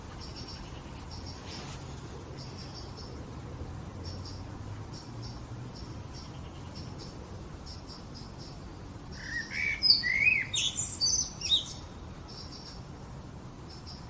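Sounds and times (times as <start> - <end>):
songbird singing: 0.0 - 13.0, 13.6 - 14.0.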